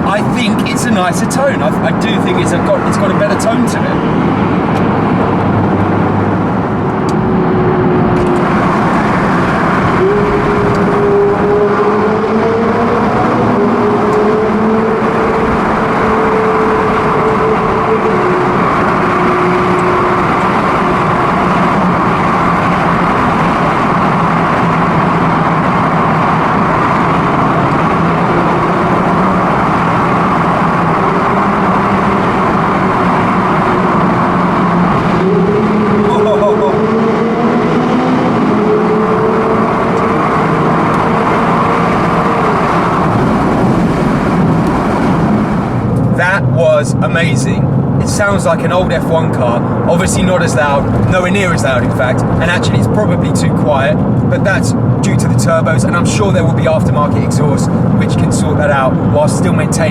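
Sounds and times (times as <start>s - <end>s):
car engine running: 0.0s - 59.9s
road and tyre noise: 0.0s - 59.9s.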